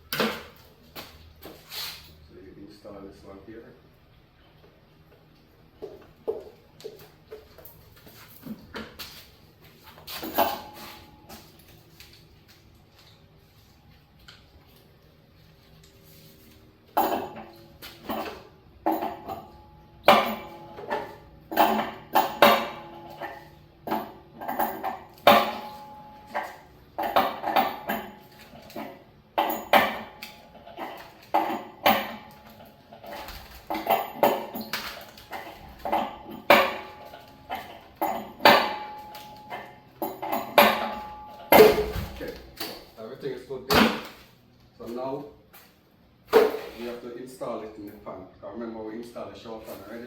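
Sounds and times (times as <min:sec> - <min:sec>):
metal tool clinking on metal: 0:10.2 - 0:11.4, 0:17.0 - 0:42.1.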